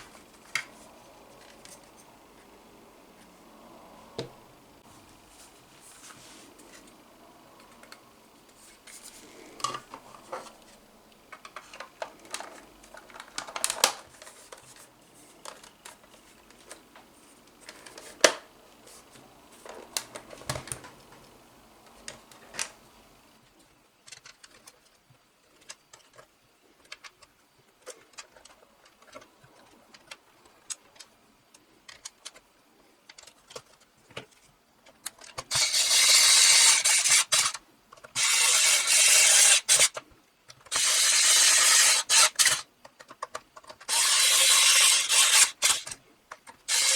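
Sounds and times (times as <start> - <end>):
loud rubbing or filing: 35.5 - 37.5, 38.2 - 39.9, 40.7 - 42.6, 43.9 - 45.9.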